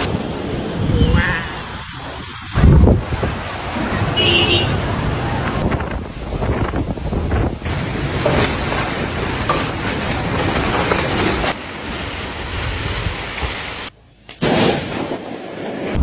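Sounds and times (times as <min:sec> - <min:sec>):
storm wind rushing: 0:00.0 - 0:04.2, 0:04.8 - 0:09.4
wind buffeting microphone: 0:00.0 - 0:04.2, 0:04.8 - 0:10.6.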